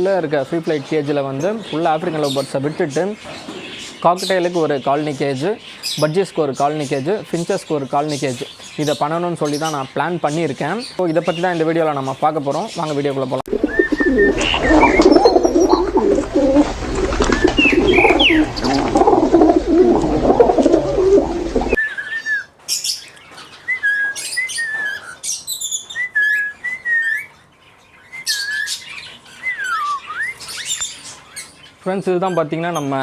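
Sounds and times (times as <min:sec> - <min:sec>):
parrots chattering: 0:13.5 - 0:21.8
whistled bird calls: 0:13.5 - 0:23.0, 0:23.6 - 0:27.3, 0:28.1 - 0:31.4.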